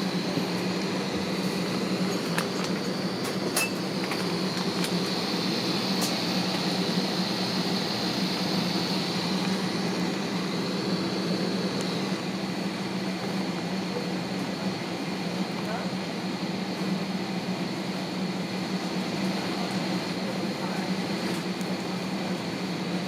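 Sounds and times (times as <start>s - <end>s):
cabin air system hum: 0.0s - 23.0s
hiss: 4.1s - 12.2s.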